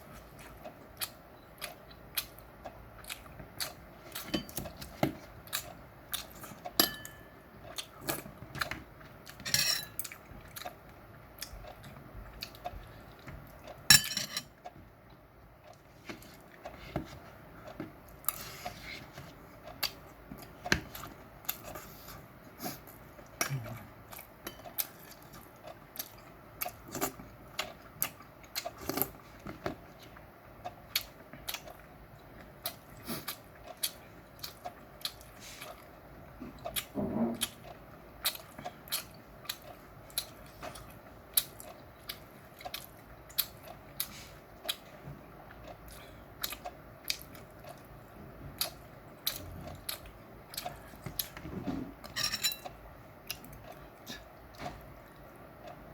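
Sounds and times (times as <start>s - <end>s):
person chewing meat: 0.0s - 55.9s
utensils clattering against dishes: 9.4s - 10.0s, 52.1s - 52.7s.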